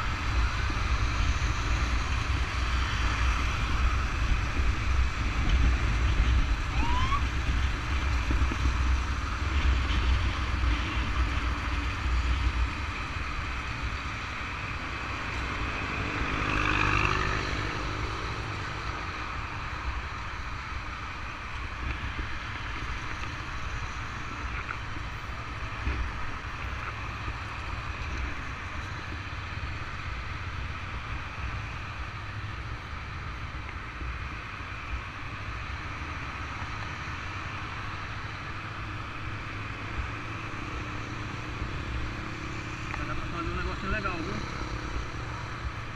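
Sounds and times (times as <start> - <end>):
wind noise: 0.0 - 16.4
motorcycle engines rumbling: 0.0 - 45.9.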